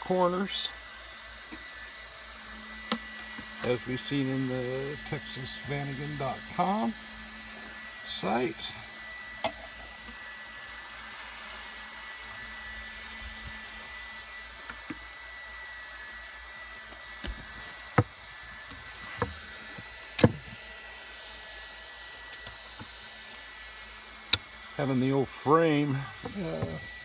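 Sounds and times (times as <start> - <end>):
faint high whine: 0.0 - 27.0
sharp knocks and clicks: 20.2 - 20.6.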